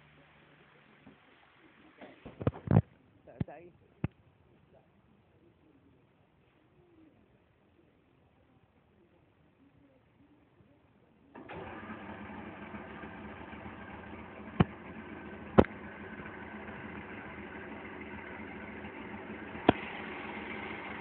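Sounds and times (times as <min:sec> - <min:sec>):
outboard engine idling: 0:11.3 - 0:21.0.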